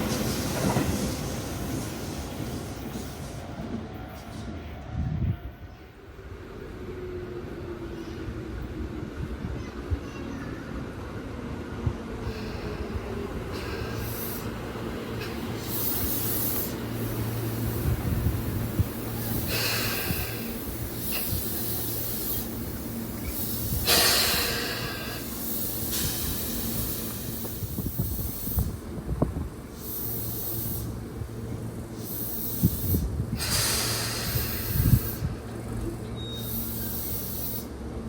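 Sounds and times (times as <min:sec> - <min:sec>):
electric train humming: 0:00.0 - 0:09.5, 0:10.9 - 0:38.0
air hissing: 0:12.2 - 0:37.7.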